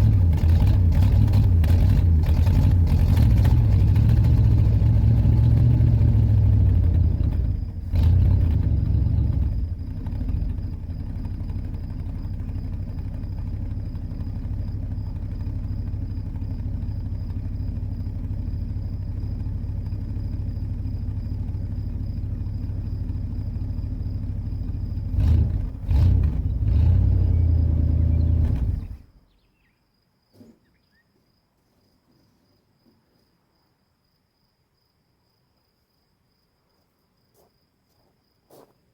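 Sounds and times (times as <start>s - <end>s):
car engine idling: 0.0s - 29.2s
engine throttle blips: 0.0s - 29.2s.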